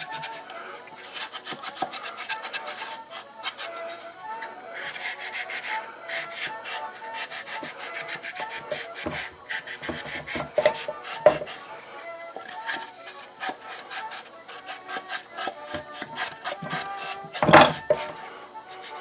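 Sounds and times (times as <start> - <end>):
scrubbing on wood: 12.5 - 18.2.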